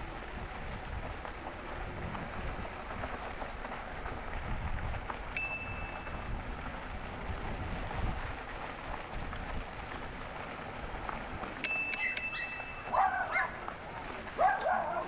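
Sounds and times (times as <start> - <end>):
bike rolling noise: 0.0 - 15.0
bicycle bell ding: 5.4 - 6.2, 11.6 - 13.0.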